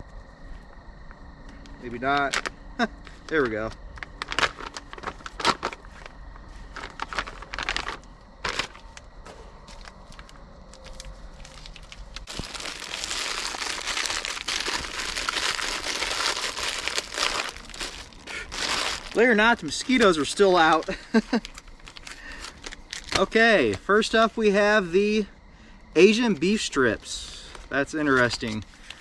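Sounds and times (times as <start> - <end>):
plastic bag crinkling: 2.2 - 9.1, 9.7 - 23.3.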